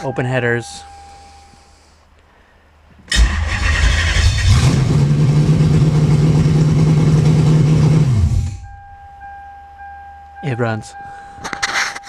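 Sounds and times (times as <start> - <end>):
engine starting and idling: 3.1 - 9.0.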